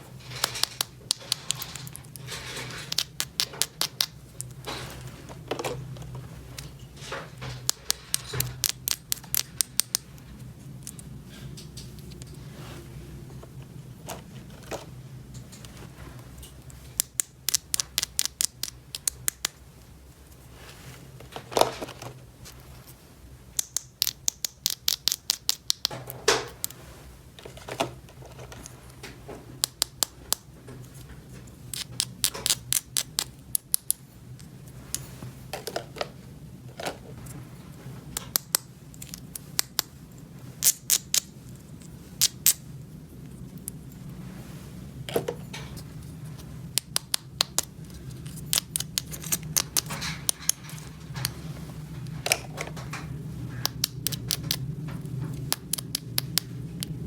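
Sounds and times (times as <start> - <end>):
steady low hum: 0.0 - 57.0
plastic toy pieces snapping: 2.9 - 4.6, 7.6 - 10.0, 17.0 - 19.6, 23.6 - 26.8, 31.7 - 34.0, 38.2 - 39.9, 40.6 - 41.3, 42.2 - 42.6, 46.7 - 50.6, 53.6 - 54.6, 55.5 - 56.9.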